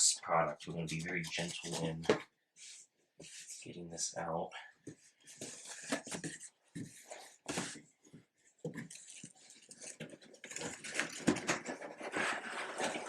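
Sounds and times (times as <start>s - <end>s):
cardboard box rustling and scraping: 5.3s - 7.8s, 8.7s - 13.0s.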